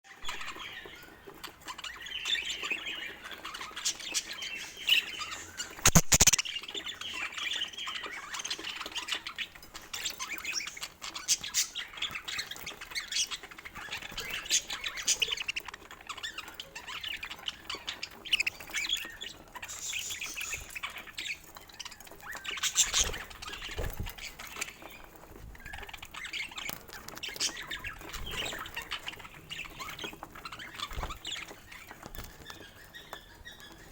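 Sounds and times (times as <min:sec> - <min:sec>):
budgerigars chattering: 0:01.8 - 0:21.4.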